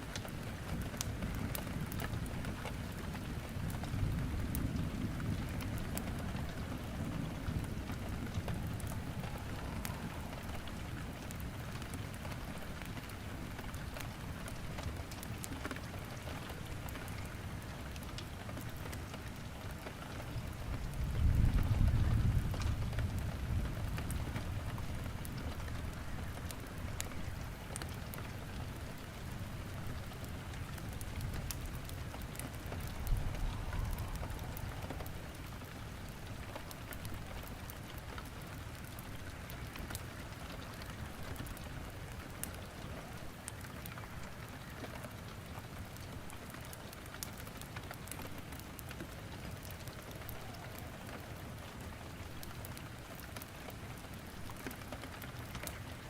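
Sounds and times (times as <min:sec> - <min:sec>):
burning logs crackling: 0:00.0 - 0:56.0
steady rain falling: 0:00.0 - 0:56.0
low rumble: 0:32.7 - 0:36.4.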